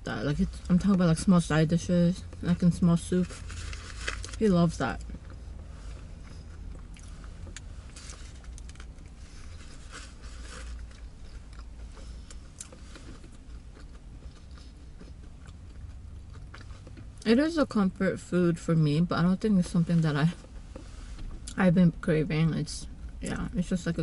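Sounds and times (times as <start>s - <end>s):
low car cabin hum: 0.0s - 24.0s
person chewing food: 5.0s - 17.2s.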